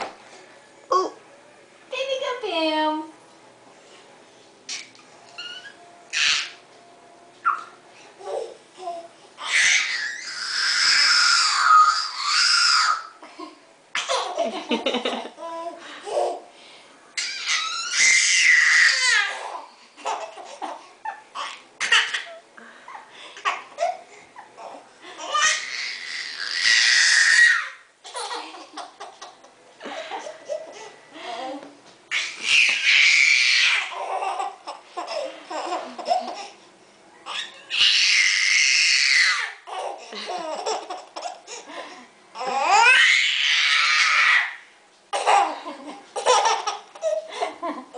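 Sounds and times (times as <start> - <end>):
baby squealing: 4.7 - 6.6, 7.4 - 8.4, 9.4 - 13.2, 17.2 - 22.4, 23.4 - 28.4, 32.1 - 36.5, 37.3 - 41.4, 42.4 - 44.6
high-pitched shrieking: 5.4 - 6.6, 9.4 - 13.1, 17.2 - 19.2, 25.4 - 27.8, 32.1 - 34.0, 37.3 - 39.6
baby giggling: 19.2 - 25.7, 28.0 - 30.9, 33.9 - 36.6, 39.7 - 41.7, 45.2 - 47.9.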